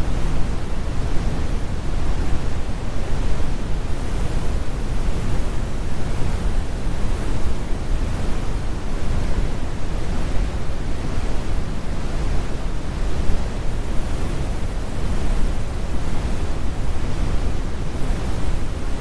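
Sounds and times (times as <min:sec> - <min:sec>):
brown noise rumbling hiss: 0:00.0 - 0:19.0.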